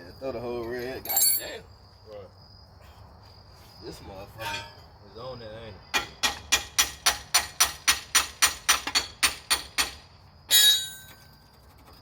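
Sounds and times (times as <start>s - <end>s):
ringing metal clang: 4.4s - 4.8s, 10.5s - 11.2s
hammer striking metal: 6.0s - 11.2s.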